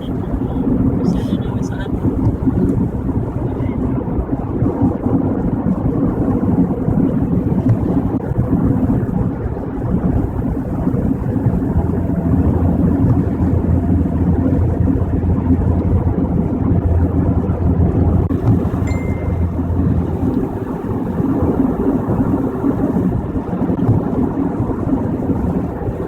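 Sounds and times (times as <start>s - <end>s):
car road and engine drone: 0.0s - 26.0s.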